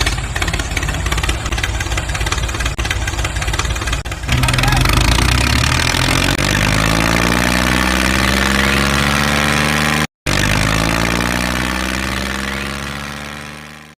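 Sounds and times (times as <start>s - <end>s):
tractor engine idling: 0.0s - 7.8s.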